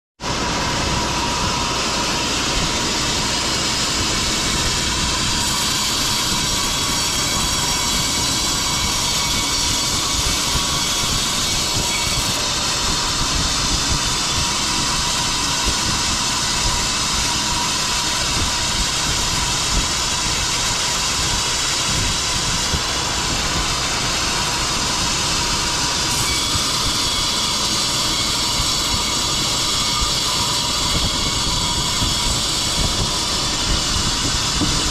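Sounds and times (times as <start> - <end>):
sawmill machinery running: 0.2 - 34.9.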